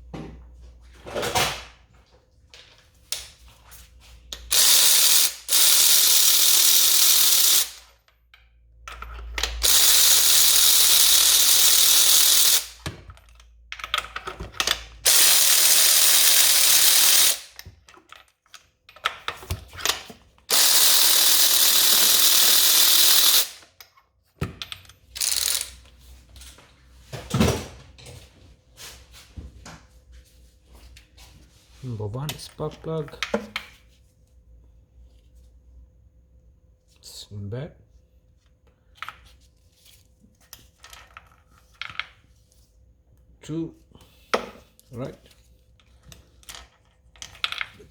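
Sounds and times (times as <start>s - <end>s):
power ratchet running: 4.5s - 7.9s, 9.4s - 12.8s, 15.0s - 17.6s, 20.5s - 23.6s, 25.2s - 25.8s
tool and metal clicks: 24.6s - 25.8s.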